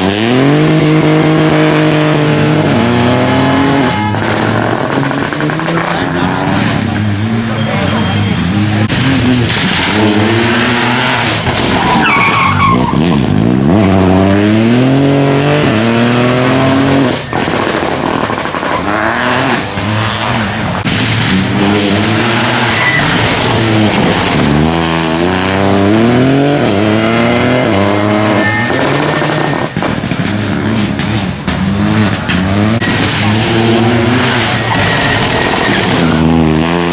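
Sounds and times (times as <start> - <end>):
rally car engines at full throttle: 0.0 - 36.9
tyre squeal: 7.5 - 8.7, 11.8 - 13.3, 21.9 - 23.9, 26.6 - 29.8, 32.8 - 36.9.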